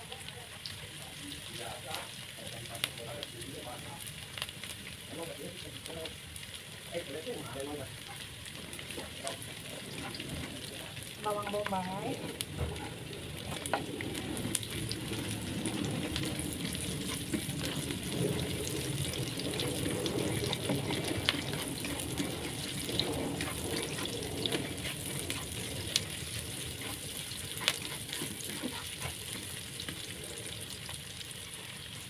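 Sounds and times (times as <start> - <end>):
onions sizzling in hot oil: 0.0 - 32.0
spatula scraping a pan: 13.3 - 30.8.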